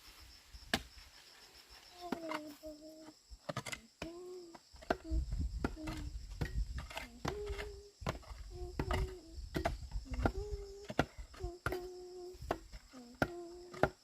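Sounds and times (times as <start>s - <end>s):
high insect drone: 0.0s - 14.0s
hand tools striking earth and stone: 0.6s - 1.1s, 3.4s - 14.0s.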